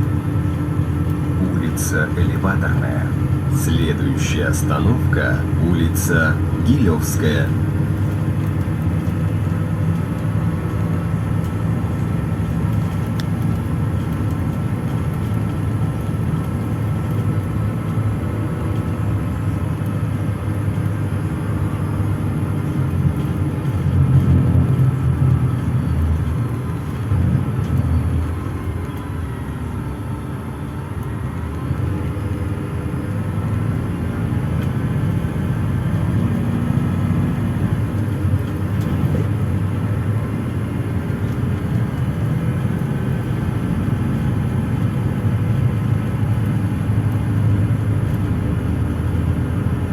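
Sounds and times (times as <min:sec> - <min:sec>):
bus engine drone: 0:00.0 - 0:49.9
road rumble: 0:00.0 - 0:49.9
faint whine: 0:00.8 - 0:08.1, 0:18.8 - 0:36.2.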